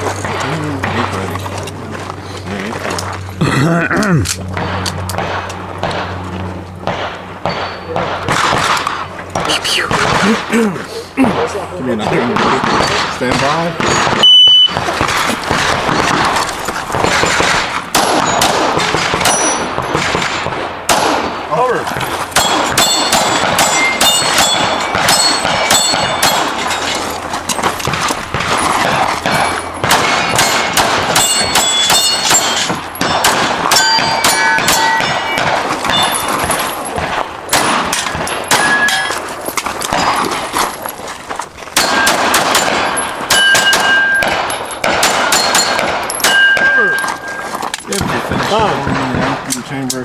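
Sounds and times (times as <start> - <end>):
pistol shots: 4.5 - 10.6, 11.2 - 40.4, 41.8 - 49.9
steel targets ringing: 6.9 - 8.5, 17.1 - 20.4, 22.3 - 40.2, 41.8 - 47.7.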